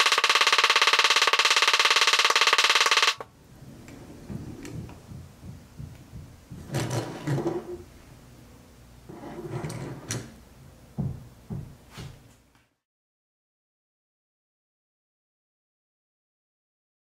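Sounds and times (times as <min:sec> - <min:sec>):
toy truck wheels rolling on mat: 0:06.6 - 0:07.8.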